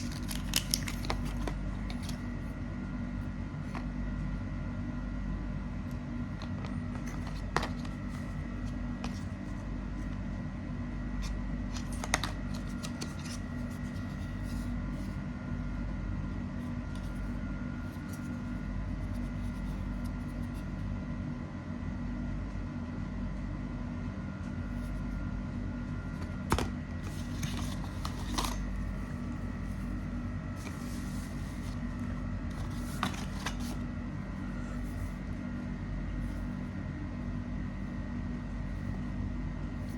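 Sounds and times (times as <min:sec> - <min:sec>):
packaging rustling: 0:00.0 - 0:02.4, 0:26.2 - 0:30.0, 0:30.6 - 0:33.8.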